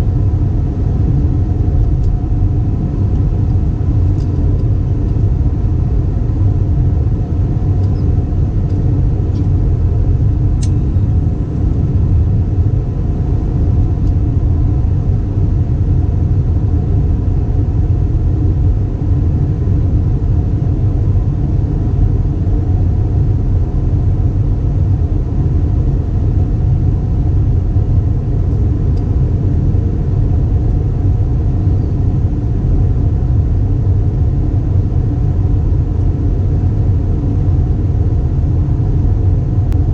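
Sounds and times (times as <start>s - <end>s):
aircraft cabin drone: 0.0s - 39.9s
faint steady hum: 0.0s - 39.9s
small click: 7.8s - 8.1s, 10.6s - 10.9s.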